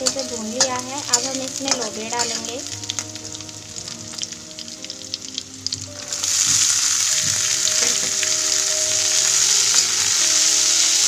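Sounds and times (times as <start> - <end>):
metal spatula scraping pan: 0.0 - 2.6
vegetables sizzling in oil: 0.0 - 11.0.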